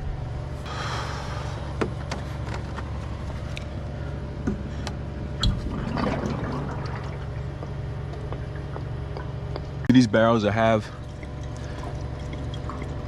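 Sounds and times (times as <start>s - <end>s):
steady low hum: 0.0s - 13.0s
liquid trickling into a jug: 5.4s - 7.8s, 10.8s - 13.0s.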